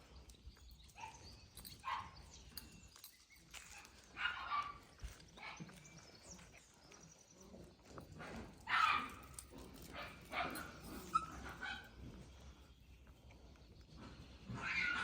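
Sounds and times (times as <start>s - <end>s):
puppies yapping: 8.6s - 12.2s, 14.4s - 15.0s.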